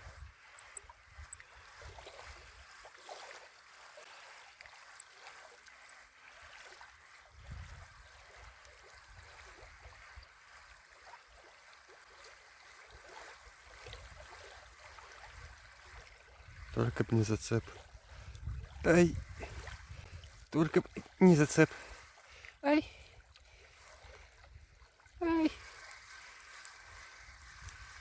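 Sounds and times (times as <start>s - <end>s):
water lapping and gurgling: 0.0s - 28.0s
wind rumbling on microphone: 7.3s - 8.5s, 15.2s - 20.5s, 26.8s - 28.0s.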